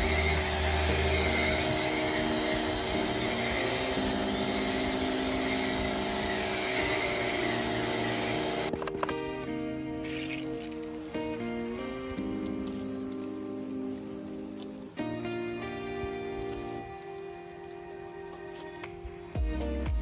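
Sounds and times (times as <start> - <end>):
pressure washer spraying water: 0.0 - 8.7, 12.3 - 18.8.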